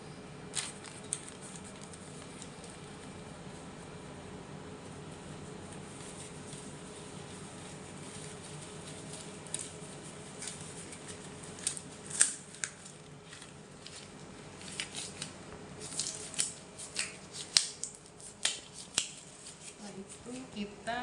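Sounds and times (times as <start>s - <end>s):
low machine hum: 0.0s - 21.0s
packaging crinkles and clicks: 0.5s - 2.9s, 10.4s - 19.8s.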